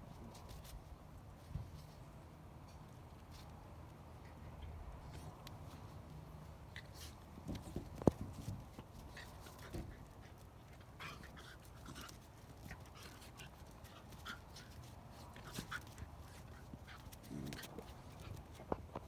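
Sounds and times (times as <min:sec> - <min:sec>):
puppies panting: 0:06.8 - 0:18.9.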